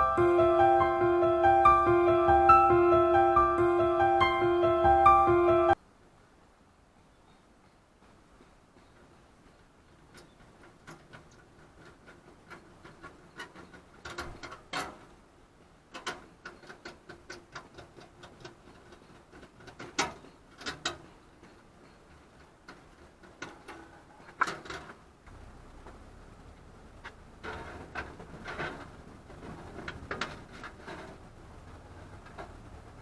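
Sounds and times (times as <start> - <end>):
hard objects clicking and knocking: 8.7 - 15.2, 15.8 - 26.0, 27.0 - 33.0.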